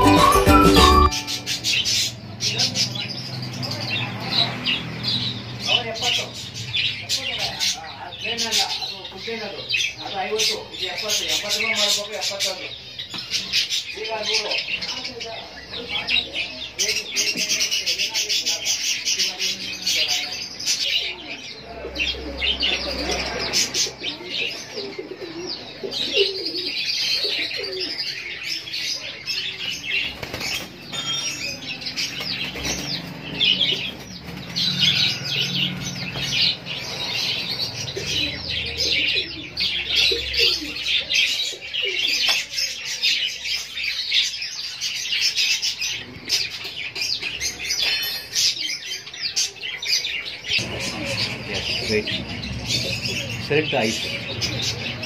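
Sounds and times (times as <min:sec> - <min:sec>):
birds chirping: 0:00.0 - 0:55.0
pigeons cooing: 0:20.8 - 0:30.9, 0:31.7 - 0:55.0
wings flapping: 0:30.0 - 0:30.8.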